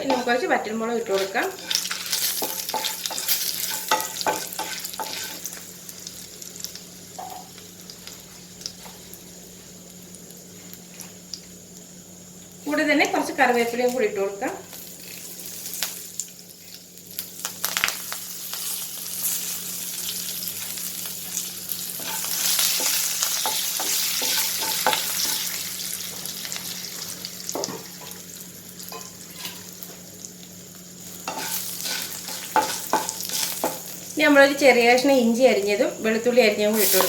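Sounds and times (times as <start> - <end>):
oil sizzling in a pan: 0.0 - 37.0
spoon scraping and tapping pan: 1.2 - 5.4, 31.2 - 33.8.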